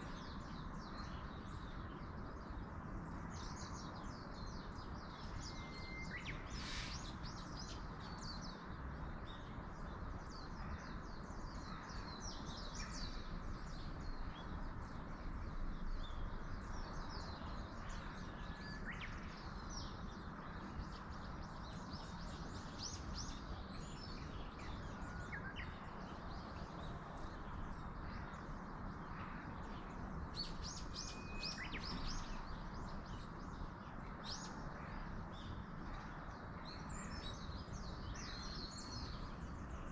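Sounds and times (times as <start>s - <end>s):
small birds chirping and twittering: 0.0s - 39.9s
wind in trees: 0.0s - 39.9s
thin whistled bird notes: 5.5s - 6.9s.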